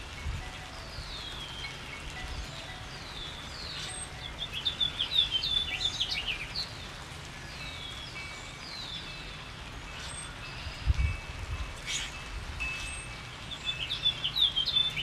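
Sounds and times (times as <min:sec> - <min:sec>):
rain hissing: 0:00.0 - 0:15.0
songbird whistling and chirping: 0:00.7 - 0:06.8, 0:12.7 - 0:15.0.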